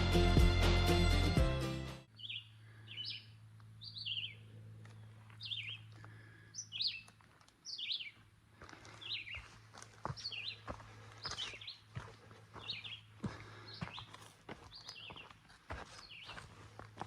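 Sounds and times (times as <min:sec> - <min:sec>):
background music: 0:00.0 - 0:02.1
songbird chirping: 0:02.0 - 0:17.0.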